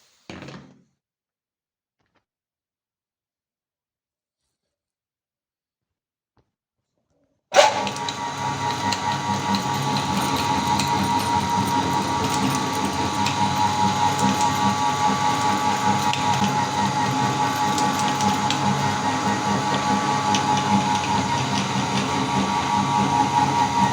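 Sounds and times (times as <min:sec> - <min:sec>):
electric meat grinder motor: 0:07.6 - 0:23.9.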